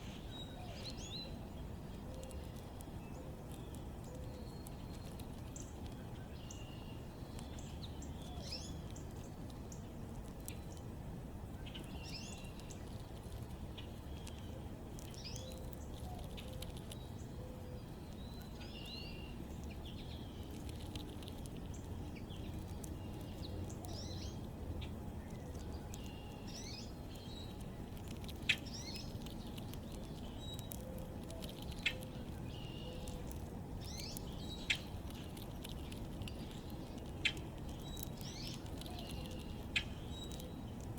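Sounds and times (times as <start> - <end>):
low background rumble: 0.0 - 40.9
small birds chirping: 0.0 - 40.9.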